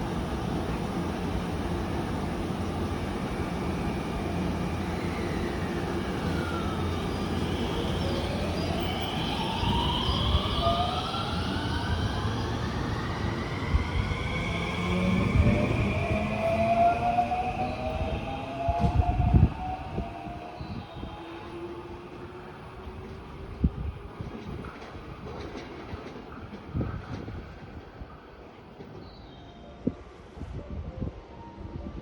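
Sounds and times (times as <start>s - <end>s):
electric train rumbling: 0.0s - 32.0s
traction motor whine rising: 5.0s - 21.5s.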